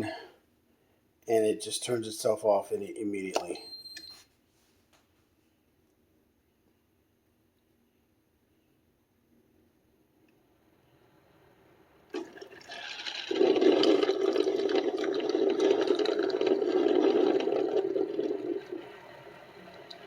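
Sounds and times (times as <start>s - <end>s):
water rushing through coffee maker: 12.1s - 20.0s.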